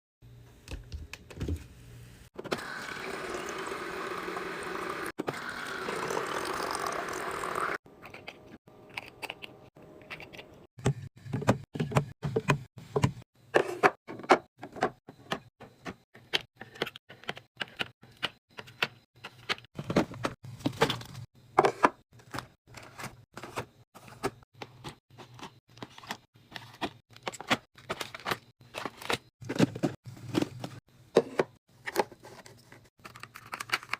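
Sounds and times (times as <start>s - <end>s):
water pouring: 2.6s - 7.8s.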